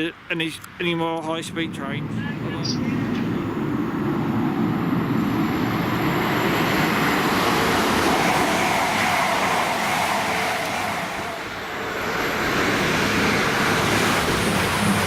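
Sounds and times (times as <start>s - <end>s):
train passing with rushing wheels: 0.0s - 15.0s.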